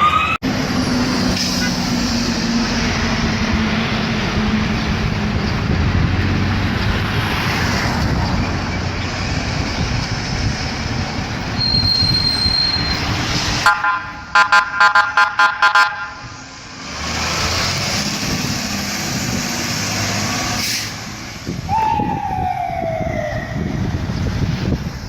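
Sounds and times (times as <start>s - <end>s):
high wheel squeal: 11.4s - 13.4s.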